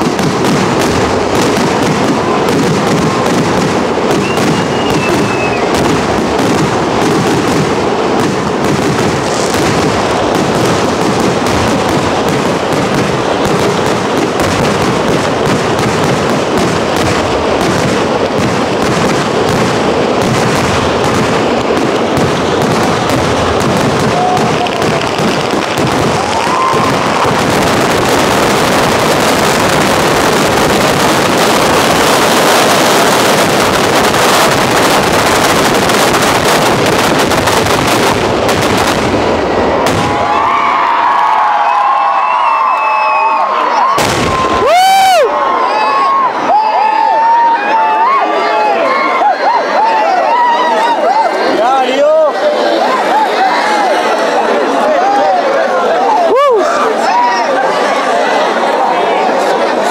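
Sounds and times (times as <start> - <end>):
fireworks banging and crackling: 0.0 - 59.9
whistling firework tones: 0.8 - 7.6, 41.6 - 47.1.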